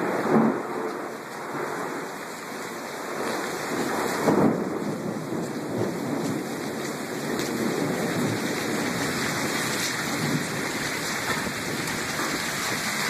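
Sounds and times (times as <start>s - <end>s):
heavy rain on pavement: 0.0s - 13.0s
faint ticks of drops or hail: 0.2s - 13.0s.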